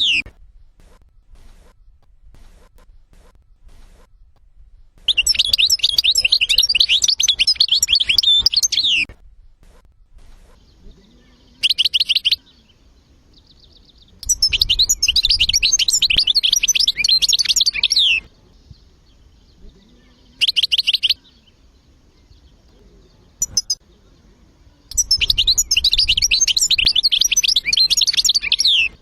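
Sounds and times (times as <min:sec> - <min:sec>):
bird twittering song: 0:00.0 - 0:29.0.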